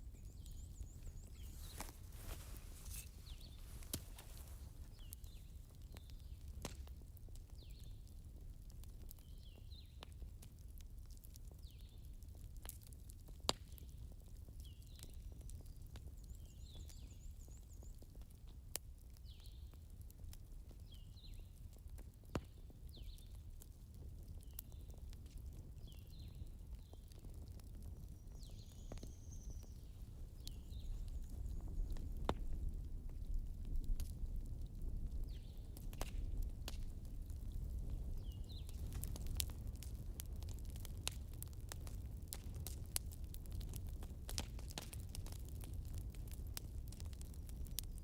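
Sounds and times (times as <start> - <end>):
campfire crackling and popping: 0.0 - 48.0.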